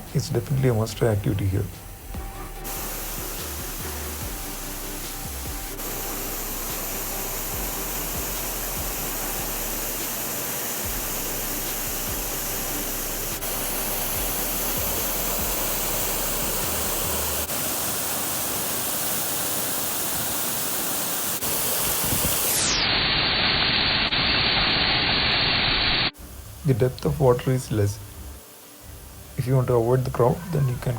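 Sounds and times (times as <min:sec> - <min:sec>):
waterfall rushing and splashing: 0:02.7 - 0:22.7.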